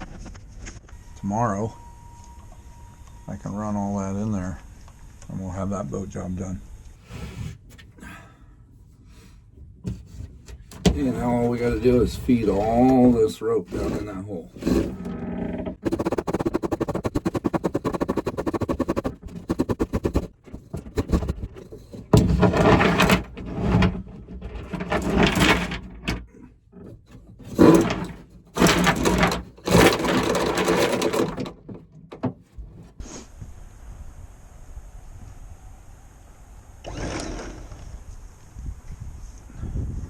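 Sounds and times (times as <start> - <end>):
anchor rode rattling through deck hole: 9.7 - 32.9.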